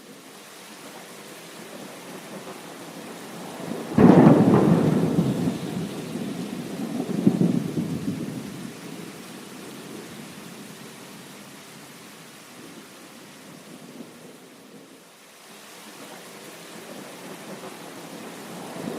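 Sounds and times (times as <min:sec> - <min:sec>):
heavy rain hissing: 0:00.0 - 0:18.9
thunderclap rolling into rumble: 0:03.7 - 0:08.7.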